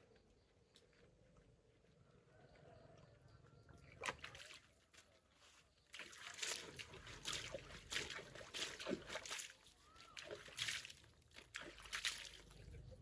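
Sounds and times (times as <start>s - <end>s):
water splashing by hand: 3.9s - 5.1s, 5.9s - 12.9s.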